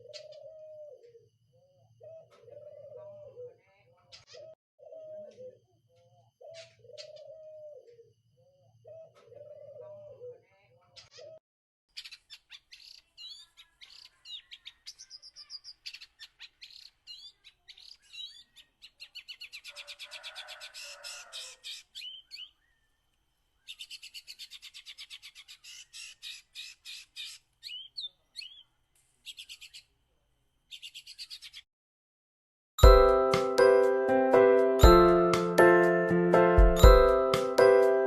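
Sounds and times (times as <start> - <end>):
songbirds chirping: 0.0 - 31.7
bird whistled phrases: 27.6 - 28.7.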